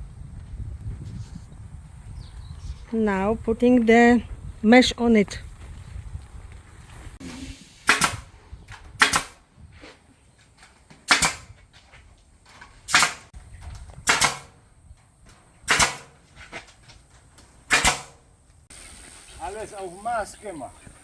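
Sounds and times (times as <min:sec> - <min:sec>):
staple gun firing: 0:14.1 - 0:14.5.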